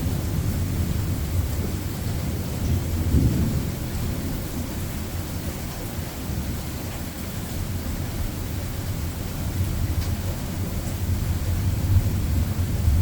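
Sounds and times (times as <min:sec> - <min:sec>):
thunder rumbling: 0:00.0 - 0:04.9, 0:11.0 - 0:13.0
rain falling: 0:00.0 - 0:13.0.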